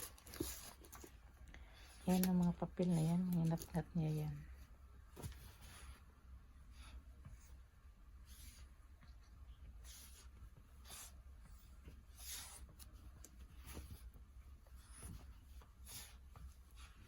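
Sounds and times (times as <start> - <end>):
puppy tearing paper: 0.0 - 1.1.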